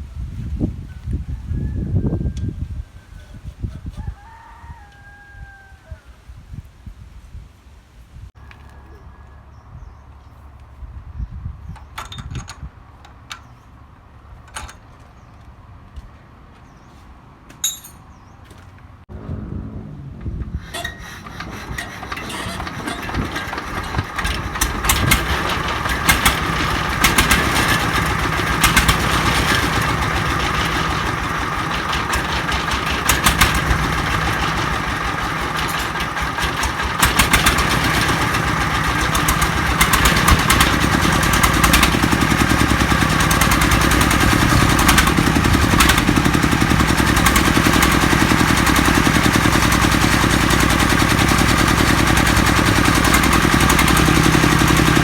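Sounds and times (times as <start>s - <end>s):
diesel engine knocking: 20.6s - 55.0s.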